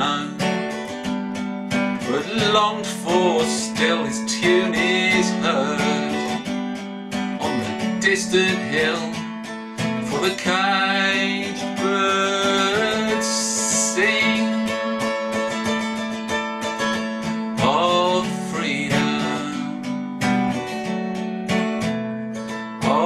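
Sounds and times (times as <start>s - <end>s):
person singing: 0.0s - 0.9s, 2.0s - 6.5s, 7.4s - 9.3s, 9.9s - 15.9s, 17.6s - 20.0s, 22.8s - 23.0s
strummed acoustic guitar: 0.0s - 23.0s.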